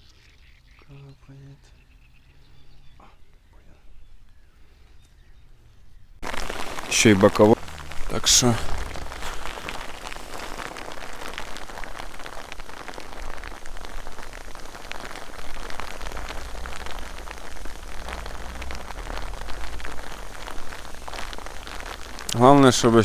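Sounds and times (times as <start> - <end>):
wind rumble on microphone: 3.4 - 23.0
raindrops tapping on microphone: 6.2 - 23.0
steady rain falling: 6.2 - 23.0.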